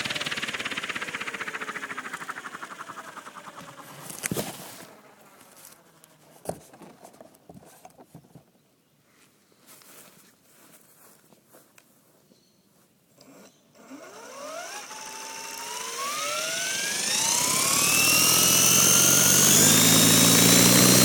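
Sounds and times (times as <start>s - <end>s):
helicopter rotor chop and motor whine: 0.0s - 6.2s, 13.9s - 21.0s.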